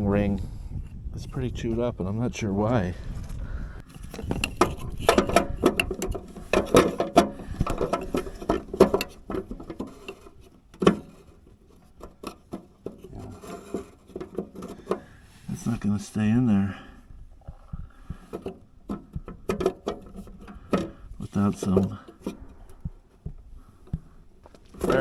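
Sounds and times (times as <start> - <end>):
plastic clicks and rattles: 3.8 - 15.1, 17.4 - 25.0.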